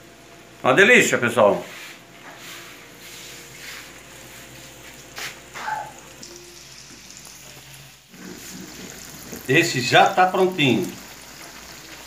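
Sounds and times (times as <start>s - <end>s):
food frying in hot oil: 3.9s - 12.0s.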